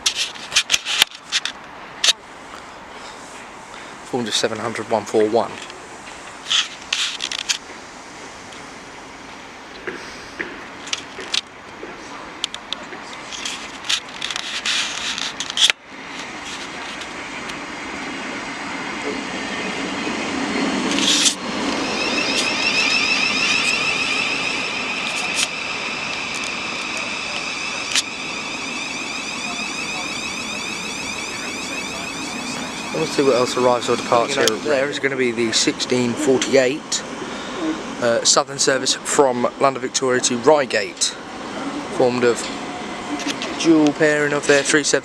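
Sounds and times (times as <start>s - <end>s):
train rumble: 0.0s - 45.0s
high-pitched electrical whine: 10.5s - 45.0s
scattered clicks: 20.9s - 34.6s.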